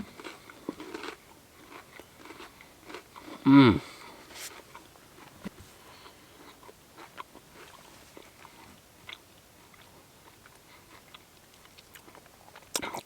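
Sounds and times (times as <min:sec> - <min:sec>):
person chewing crunchy cookie: 0:00.0 - 0:13.0.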